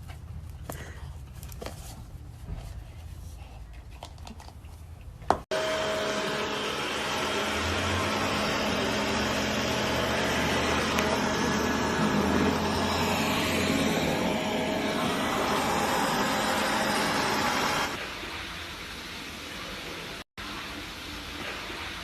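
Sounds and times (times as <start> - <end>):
motor running with low hum: 5.5 - 18.0.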